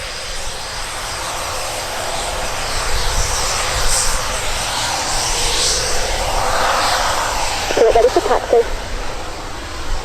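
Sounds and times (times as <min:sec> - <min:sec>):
jet engine roar: 0:03.4 - 0:09.4.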